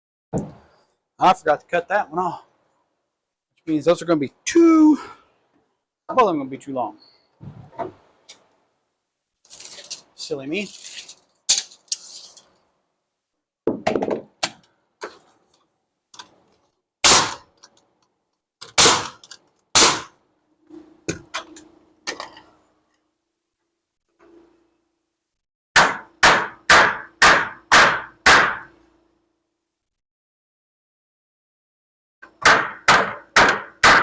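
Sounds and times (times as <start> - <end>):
hammer striking wood: 17.1 - 17.5, 18.8 - 19.2, 19.8 - 20.1, 25.8 - 28.7, 32.4 - 34.0.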